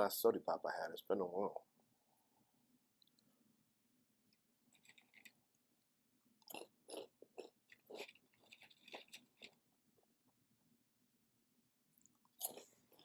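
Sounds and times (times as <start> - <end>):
person chewing crunchy food: 4.7 - 5.4, 6.4 - 9.6, 12.0 - 13.0.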